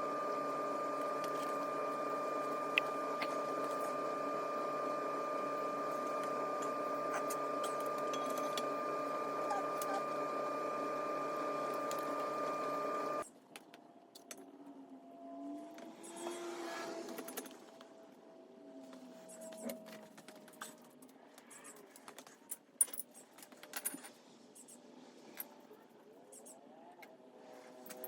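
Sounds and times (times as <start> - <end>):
mechanical hum: 0.0 - 22.0.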